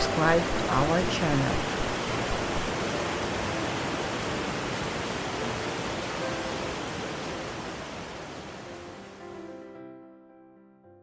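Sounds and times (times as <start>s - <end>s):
waterfall roaring: 0.0s - 8.7s
faint piano music: 0.0s - 11.0s.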